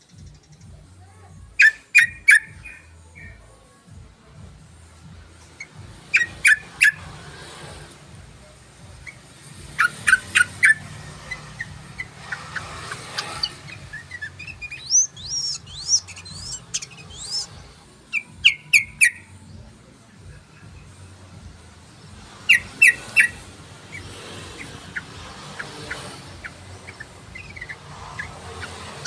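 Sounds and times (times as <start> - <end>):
bird chattering notes: 1.5 - 3.4, 5.4 - 7.9, 8.9 - 19.6, 21.9 - 29.0
bird whistled notes: 1.6 - 3.4, 5.6 - 7.2, 9.0 - 19.4, 22.4 - 29.0.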